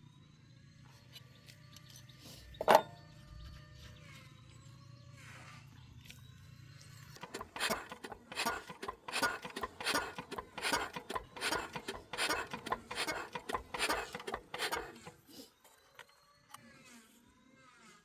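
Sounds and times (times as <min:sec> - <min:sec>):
rhythmic scraping strokes: 0:07.2 - 0:15.3.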